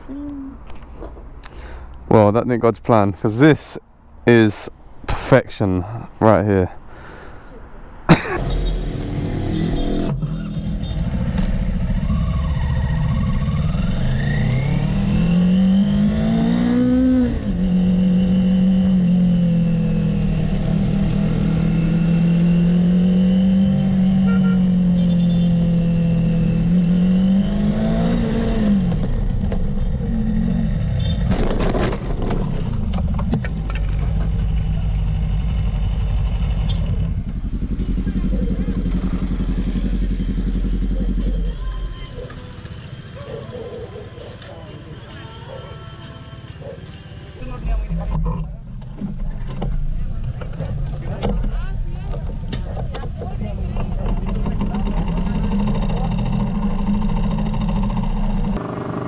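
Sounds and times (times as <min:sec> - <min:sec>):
motorcycle engine accelerating: 0:08.4 - 0:31.2, 0:33.5 - 0:43.3, 0:53.7 - 0:59.0.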